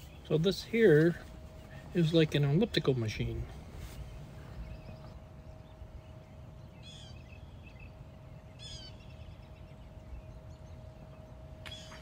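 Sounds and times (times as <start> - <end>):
low steady rumble: 0.0 - 12.0
small birds chirping: 0.0 - 12.0.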